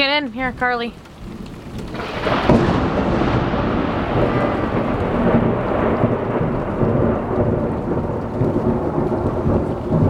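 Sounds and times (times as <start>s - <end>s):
deep uneven rumble: 0.0s - 10.0s
heavy rain pouring: 0.0s - 10.0s.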